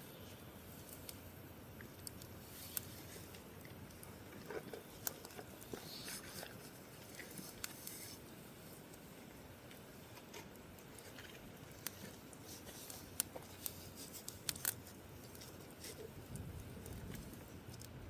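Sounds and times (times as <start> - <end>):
low hiss: 0.0 - 18.0
campfire crackling and popping: 0.6 - 18.0.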